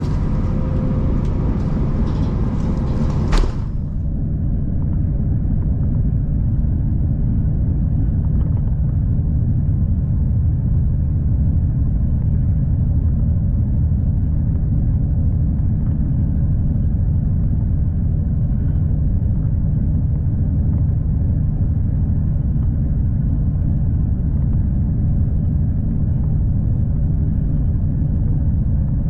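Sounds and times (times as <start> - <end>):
train wheels rumbling on track: 0.0 - 4.1.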